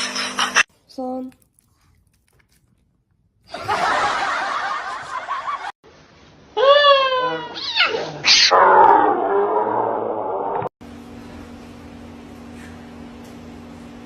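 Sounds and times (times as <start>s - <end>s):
people talking: 0.9s - 1.4s
people laughing: 3.5s - 5.7s.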